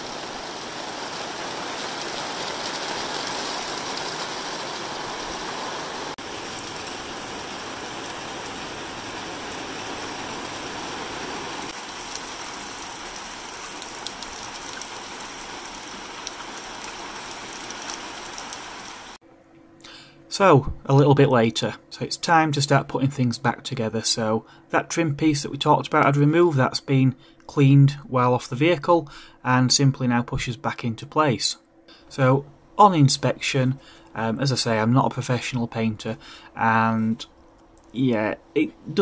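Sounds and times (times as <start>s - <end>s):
heavy rain pouring: 0.0s - 19.2s.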